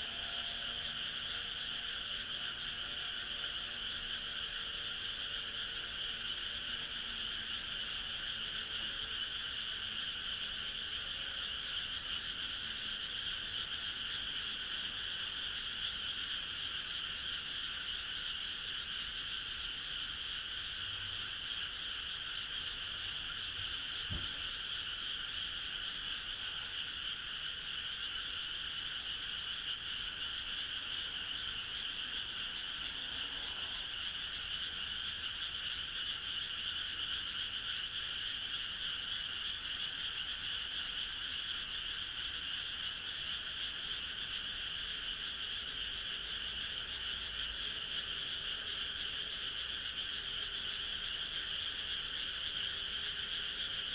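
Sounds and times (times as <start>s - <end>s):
frogs calling: 0.0s - 53.9s
low thump: 24.1s - 24.4s.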